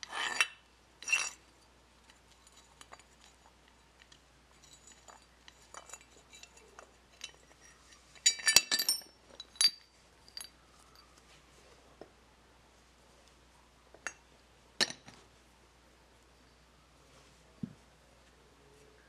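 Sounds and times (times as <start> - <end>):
metal parts and tools clinking: 0.0 - 11.1
ringing metal clinks: 7.2 - 11.1.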